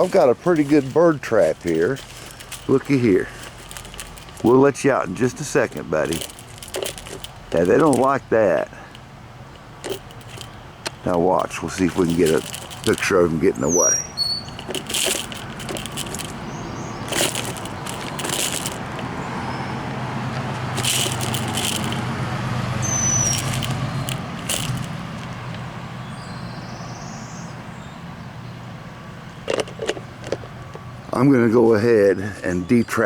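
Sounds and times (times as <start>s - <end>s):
birds rustling in a feeder: 0.0s - 26.3s
passing vehicle hum: 0.0s - 26.8s
high bird chirp: 13.5s - 14.7s, 16.3s - 17.1s, 19.1s - 19.9s, 22.8s - 24.1s.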